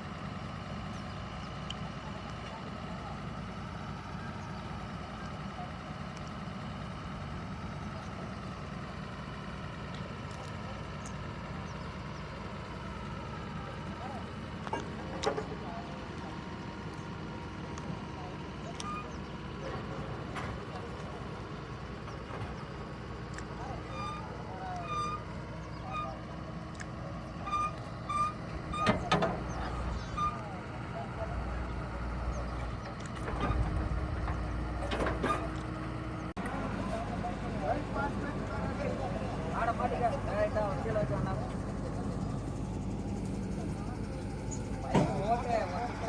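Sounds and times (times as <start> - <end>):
drilling rig engine droning: 0.0 - 46.0
reversing alarm beeps: 23.8 - 26.2, 27.4 - 29.1.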